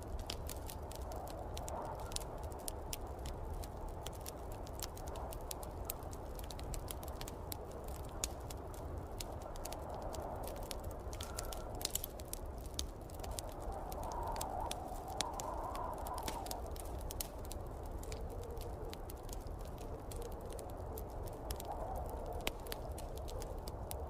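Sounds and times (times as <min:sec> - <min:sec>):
snowstorm wind rushing: 0:00.0 - 0:24.0
wood fire crackling: 0:00.0 - 0:24.0.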